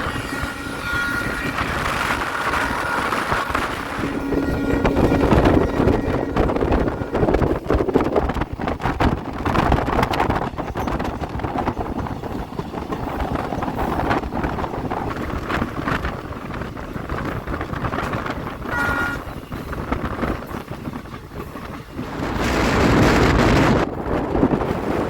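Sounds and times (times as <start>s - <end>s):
two-note tone: 0.0s - 7.5s, 18.7s - 19.4s
train rumbling on track: 0.0s - 25.0s
wind buffeting microphone: 0.0s - 25.0s.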